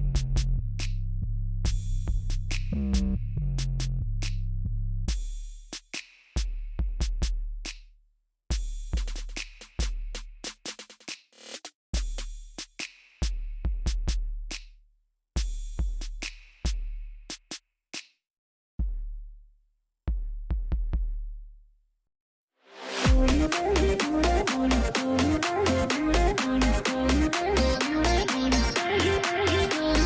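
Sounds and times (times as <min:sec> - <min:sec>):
held bass line: 0:00.0 - 0:05.1, 0:23.0 - 0:30.0
electronic drum beat: 0:01.7 - 0:04.0, 0:05.1 - 0:07.8, 0:08.5 - 0:14.6, 0:15.4 - 0:17.6, 0:20.1 - 0:21.4, 0:23.0 - 0:30.0.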